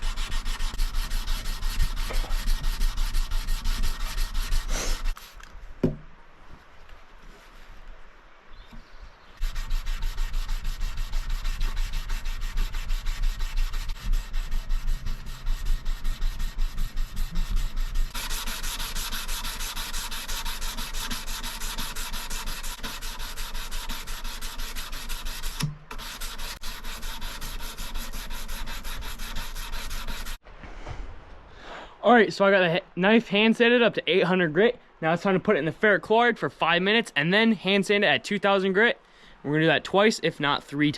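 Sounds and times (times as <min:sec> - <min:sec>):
sandpaper scratching on steel blade: 0:00.0 - 0:05.5, 0:09.4 - 0:30.4.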